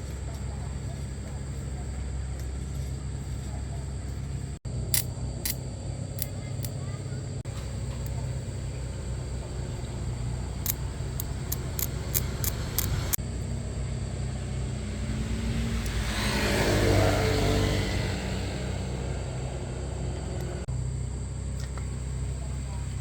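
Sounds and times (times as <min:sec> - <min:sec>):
vehicle engine humming: 0:00.0 - 0:23.0
sharp clicks: 0:04.9 - 0:06.8, 0:10.5 - 0:13.2
passing vehicle noise: 0:07.4 - 0:20.7.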